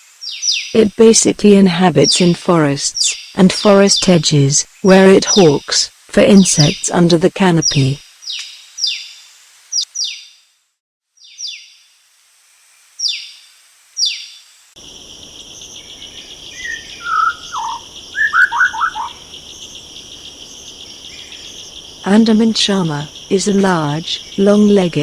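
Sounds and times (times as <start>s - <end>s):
bird sharp falling calls: 14.8s - 25.0s
shrill insect chorus: 14.8s - 25.0s
bird whistled notes: 15.6s - 21.7s.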